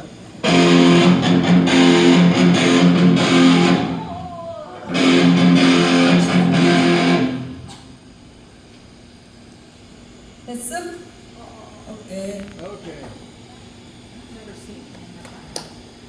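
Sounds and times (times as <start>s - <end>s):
electric guitar strummed chords: 0.4s - 8.0s.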